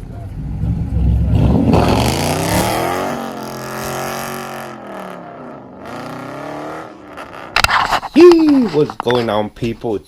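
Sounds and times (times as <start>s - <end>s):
car engine revving: 0.0s - 7.8s.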